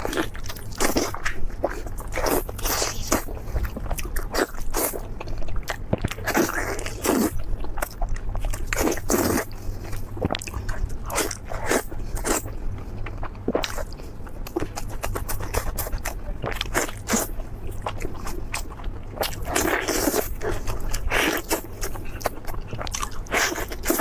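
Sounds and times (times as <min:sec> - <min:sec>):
crunchy bites and chewing: 0:00.0 - 0:24.0.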